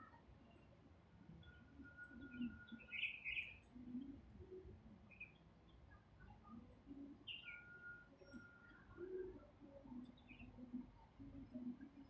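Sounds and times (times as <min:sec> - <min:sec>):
small birds chirping: 0:01.4 - 0:04.2, 0:05.0 - 0:11.8.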